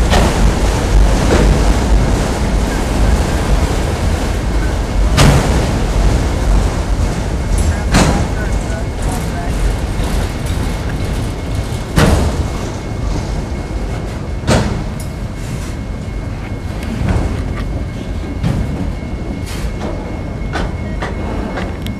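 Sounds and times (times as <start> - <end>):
freight car clanks: 0.0 - 15.2
steel wheels rumbling on rail: 0.0 - 21.9.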